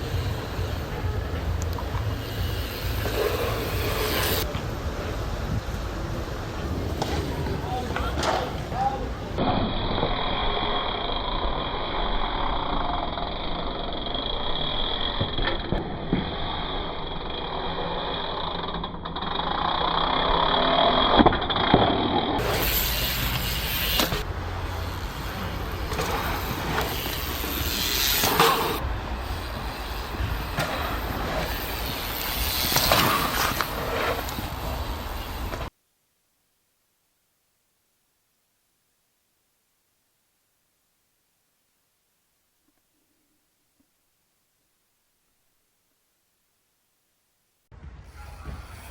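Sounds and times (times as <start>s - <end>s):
wind noise: 3.2s - 7.4s
tyres rolling on dirt: 21.4s - 35.7s.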